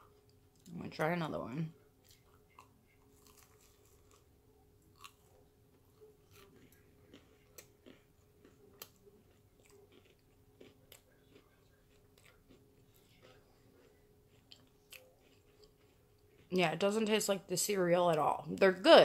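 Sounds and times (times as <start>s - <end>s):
faint chewing and biting: 1.8s - 16.8s
small crunches: 2.0s - 4.3s, 4.9s - 16.0s.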